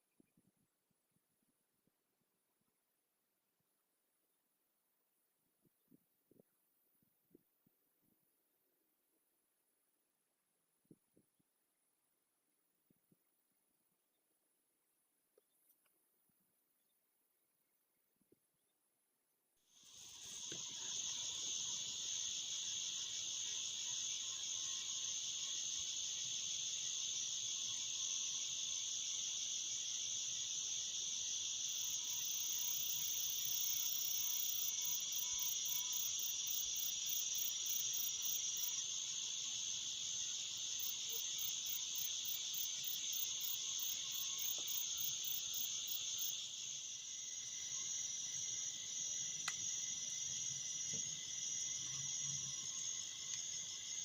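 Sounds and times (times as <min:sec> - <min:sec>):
crickets chirring: 0:19.7 - 0:54.0.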